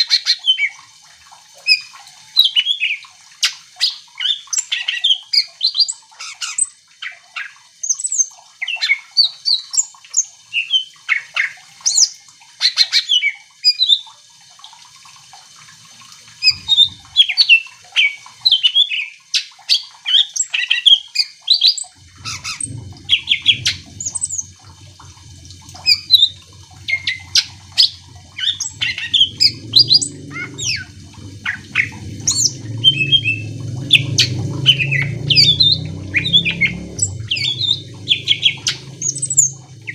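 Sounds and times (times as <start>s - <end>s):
bird chirping and trilling: 1.6s - 14.1s, 16.4s - 25.1s, 25.7s - 39.9s
low hum: 21.9s - 39.9s.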